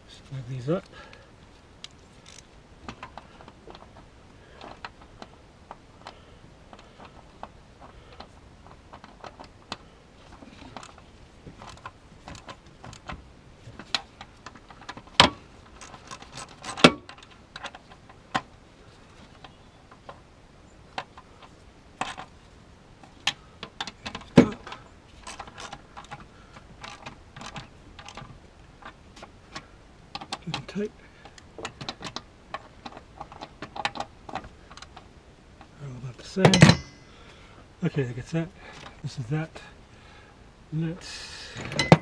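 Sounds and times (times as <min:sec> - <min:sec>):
hand tools clicking on metal: 0:23.3 - 0:29.6.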